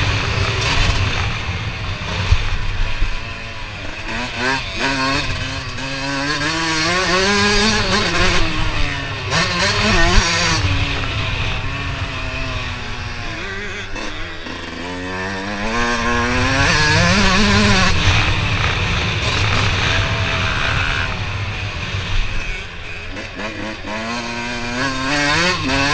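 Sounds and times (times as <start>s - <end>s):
motocross bike engine revving: 0.0s - 25.9s.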